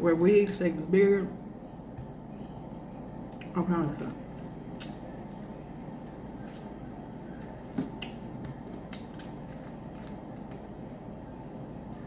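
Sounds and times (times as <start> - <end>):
low background hum: 0.0 - 12.0
shellfish shells cracking: 8.8 - 10.8.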